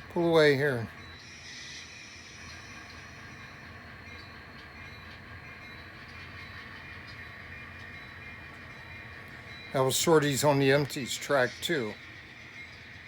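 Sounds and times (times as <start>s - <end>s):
model train running with low hum: 0.0s - 13.0s.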